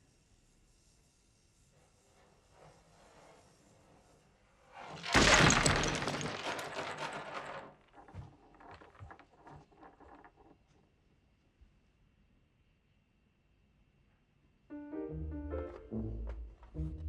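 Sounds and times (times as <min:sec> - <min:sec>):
small knocks and clatters: 0:04.8 - 0:10.9
crash of things breaking: 0:04.9 - 0:10.2.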